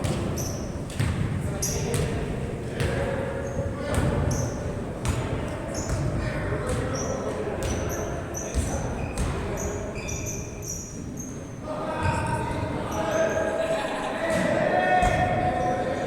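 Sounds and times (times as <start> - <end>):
basketball bouncing on court: 0.0 - 10.1
sneakers squeaking: 0.0 - 13.6
murmur of voices: 0.0 - 16.0.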